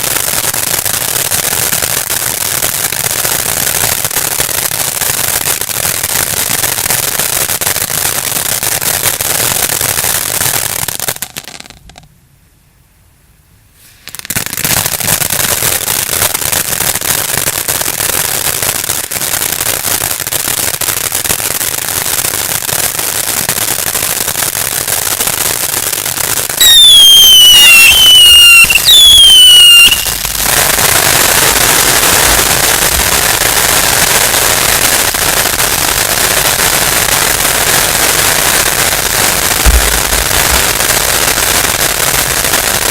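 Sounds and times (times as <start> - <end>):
fireworks crackling: 0.0 - 12.1, 13.8 - 42.9
shrieking firework whistles: 10.0 - 11.9, 13.8 - 21.6, 24.8 - 42.9.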